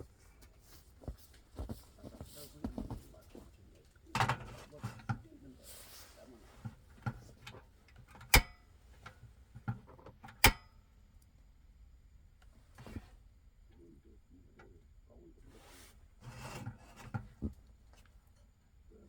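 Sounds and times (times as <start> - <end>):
knocks and clatter of handling: 0.0 - 5.4, 6.4 - 10.5, 16.2 - 18.4.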